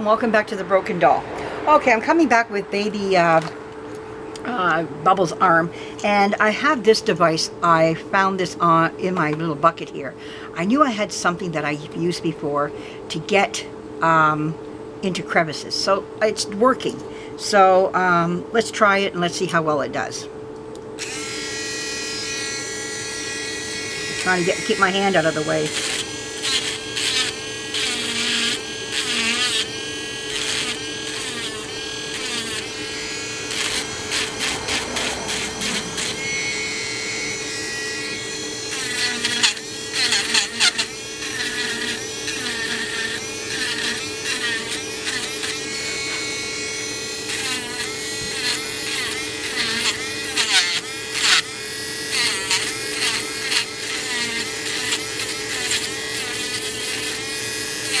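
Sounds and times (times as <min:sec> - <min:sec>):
rotary tool humming: 0:20.7 - 0:58.0
bit grinding paint: 0:21.0 - 0:58.0.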